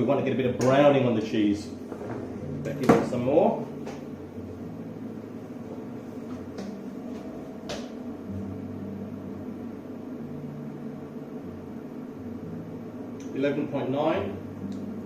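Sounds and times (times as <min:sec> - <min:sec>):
electrical hum and fan noise: 0:00.0 - 0:15.0.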